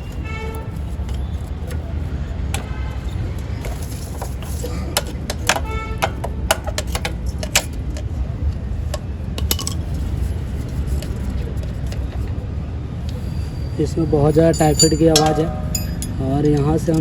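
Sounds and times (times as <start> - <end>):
spanner tapping metal: 2.5 - 8.1, 8.9 - 9.9, 14.4 - 17.0
steady low rumble: 12.4 - 17.0.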